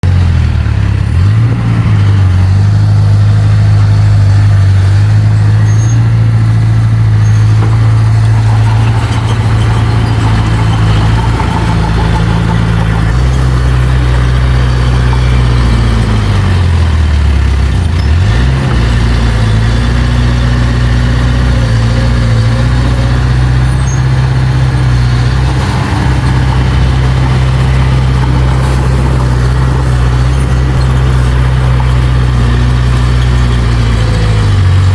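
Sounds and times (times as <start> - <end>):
heavy machinery diesel engine droning: 0.0 - 34.9.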